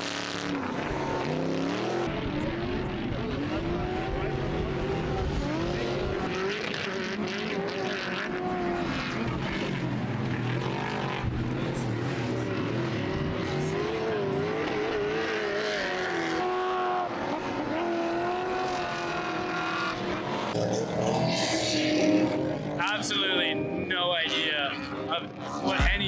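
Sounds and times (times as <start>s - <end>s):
race car engines revving: 0.0s - 26.0s.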